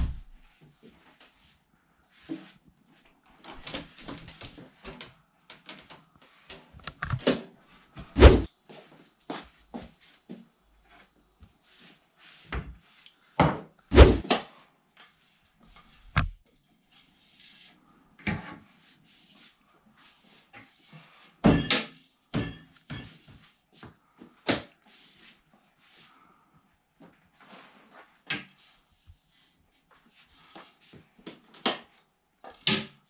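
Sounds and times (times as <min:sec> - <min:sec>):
cupboard door opening and shutting: 0:00.0 - 0:00.4, 0:08.0 - 0:08.5, 0:13.9 - 0:14.3
loud thuds: 0:08.2 - 0:08.5, 0:13.9 - 0:14.2.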